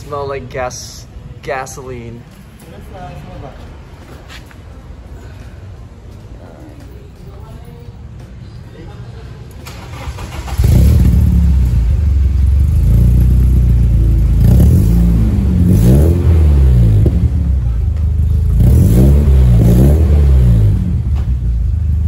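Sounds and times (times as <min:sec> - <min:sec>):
car engine revving: 0:09.7 - 0:22.0.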